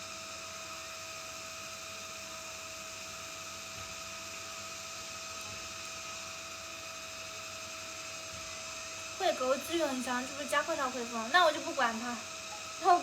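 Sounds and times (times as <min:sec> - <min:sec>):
faint high hum: 0:08.4 - 0:13.0
background hiss: 0:09.2 - 0:13.0.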